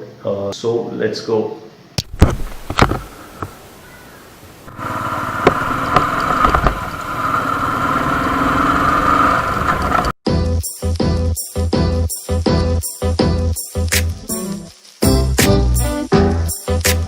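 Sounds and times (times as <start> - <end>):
motorcycle engine running: 4.7 - 10.2.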